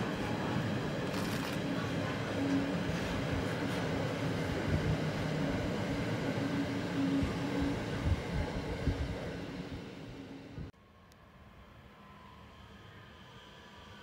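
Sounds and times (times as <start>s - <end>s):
freight wagons rumbling on rails: 0.0s - 6.0s.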